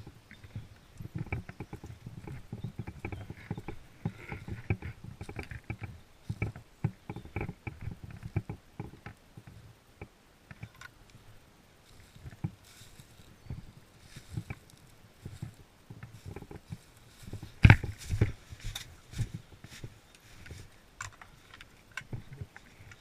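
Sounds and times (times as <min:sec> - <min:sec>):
footsteps thudding: 0:16.2 - 0:19.9.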